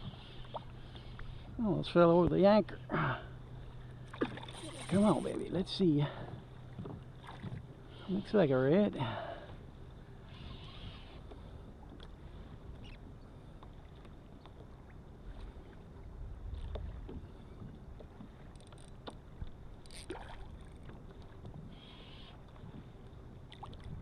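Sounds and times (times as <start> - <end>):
low steady rumble: 0.0 - 24.0
light water splashing: 4.0 - 7.7, 16.6 - 21.6.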